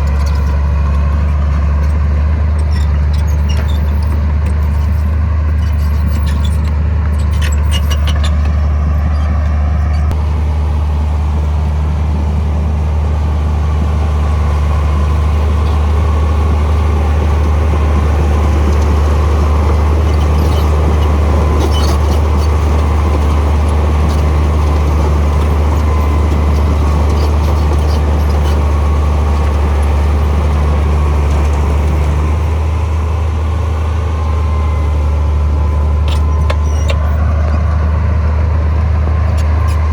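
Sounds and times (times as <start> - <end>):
heavy machinery diesel engine: 0.0 - 39.9.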